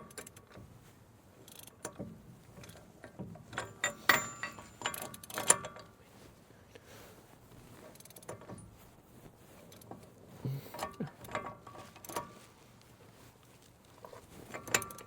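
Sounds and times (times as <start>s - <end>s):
metal tools clinking and clanking: 1.4s - 6.0s, 14.1s - 15.0s
metallic knocks with ringing: 3.6s - 5.8s.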